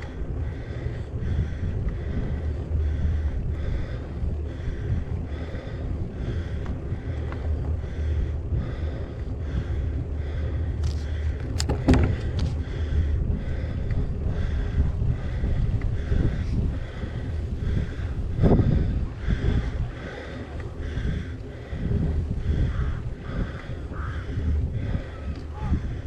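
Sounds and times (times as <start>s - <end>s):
wind buffeting microphone: 0.0s - 26.0s
sharp clicks and knocks: 10.8s - 12.6s.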